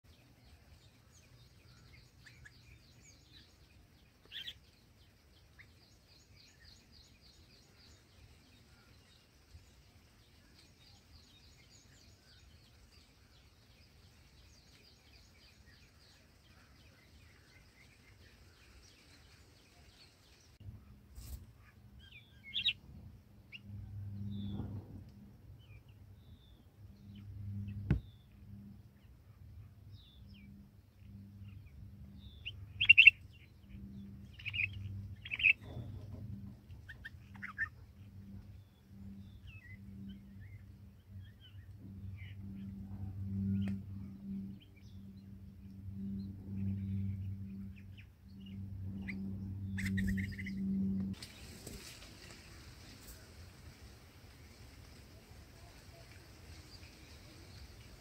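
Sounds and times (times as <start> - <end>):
low pulsing hum: 0.1 - 58.0
sharp bird chirps: 46.0 - 51.0.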